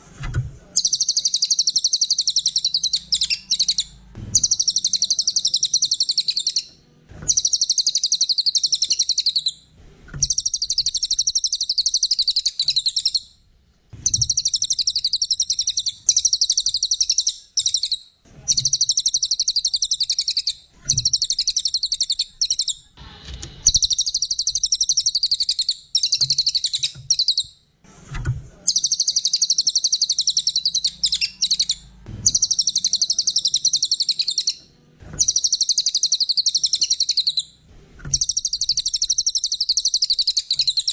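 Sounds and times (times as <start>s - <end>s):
songbird chattering song: 0.8s - 9.6s, 10.2s - 13.3s, 14.0s - 22.9s, 23.7s - 27.6s, 28.7s - 34.6s, 35.2s - 37.5s, 38.1s - 40.9s.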